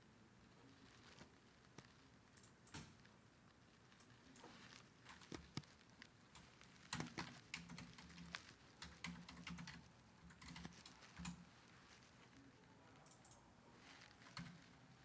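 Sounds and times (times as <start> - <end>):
faint clicks and taps: 3.9 - 14.8.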